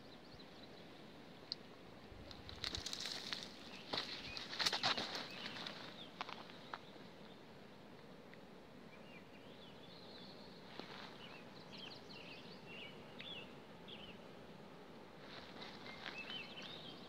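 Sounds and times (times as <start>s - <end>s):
faint bird song: 0.0s - 17.0s
rustling or footsteps: 2.3s - 6.9s, 10.7s - 11.3s, 15.2s - 16.9s.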